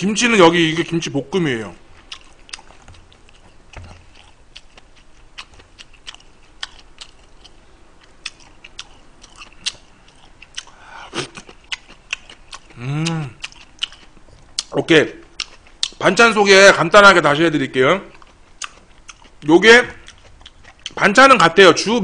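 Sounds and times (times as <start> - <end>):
person chewing with mouth smacks: 1.8 - 16.0, 18.1 - 19.4, 20.0 - 21.0.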